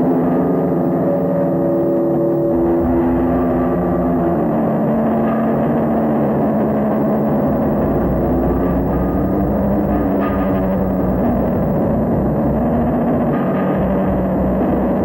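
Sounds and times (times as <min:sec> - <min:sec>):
droning tones: 0:00.0 - 0:15.0
low rumble: 0:06.9 - 0:12.6.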